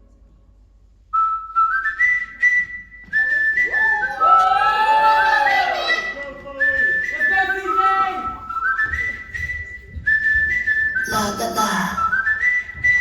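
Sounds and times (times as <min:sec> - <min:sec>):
audience whistling: 0:01.2 - 0:13.0
crowd cheering and screaming: 0:03.7 - 0:06.2.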